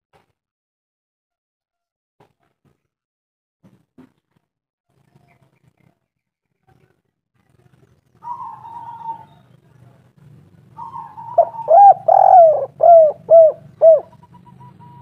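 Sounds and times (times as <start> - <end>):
dove cooing: 8.2 - 9.5, 10.8 - 15.0.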